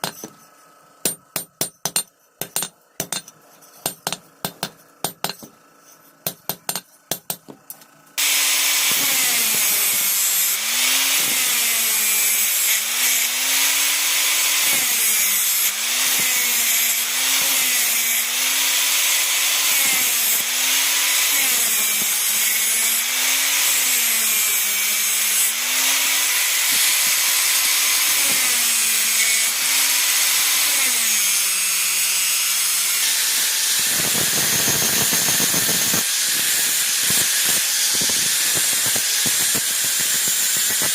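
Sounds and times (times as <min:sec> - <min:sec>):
angle grinder grinding steel: 0:08.2 - 0:40.9.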